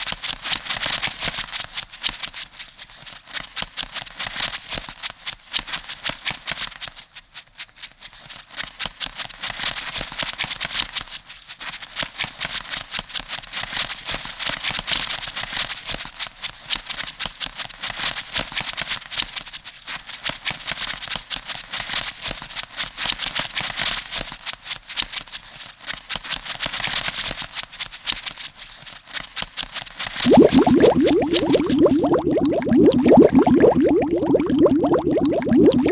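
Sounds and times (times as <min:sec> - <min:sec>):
bubbling with rising pitch: 0:30.2 - 0:35.9.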